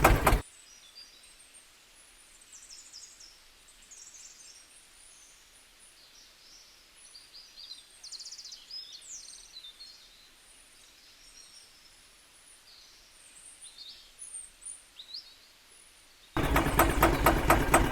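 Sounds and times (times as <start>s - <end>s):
loud engine running: 0.0s - 0.4s, 16.4s - 17.9s.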